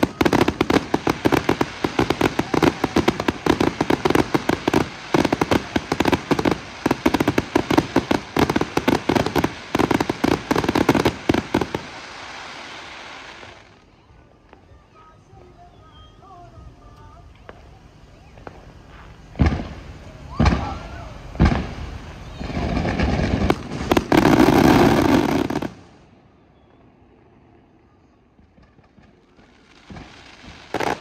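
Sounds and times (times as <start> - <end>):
fireworks bangs and pops: 0.0 - 13.8, 18.3 - 26.0, 28.4 - 31.0
fireworks crackling: 0.0 - 26.2, 27.5 - 31.0.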